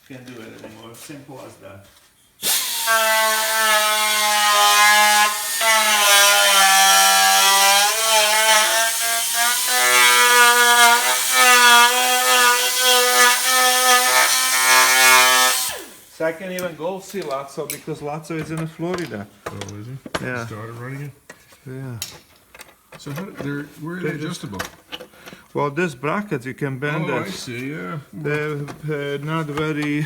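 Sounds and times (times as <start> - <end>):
electric grinder on metal: 2.4 - 16.1.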